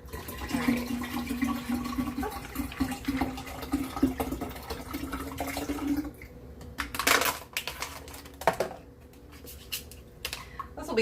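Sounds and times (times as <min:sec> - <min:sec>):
tap water running: 0:00.0 - 0:06.3.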